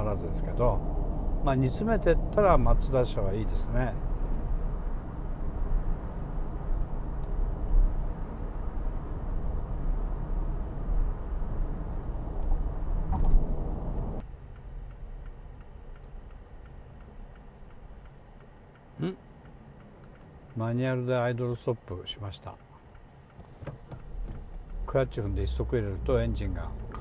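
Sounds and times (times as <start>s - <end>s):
diesel car engine: 0.0s - 27.0s
road noise: 0.0s - 27.0s
faint ticking: 14.2s - 27.0s.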